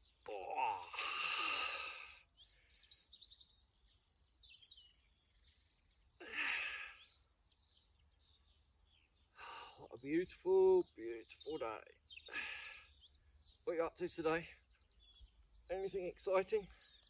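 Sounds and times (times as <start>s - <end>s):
birds chirping faintly: 0.0s - 17.0s
man breathing heavily: 0.6s - 3.1s, 6.2s - 7.2s, 12.3s - 13.0s.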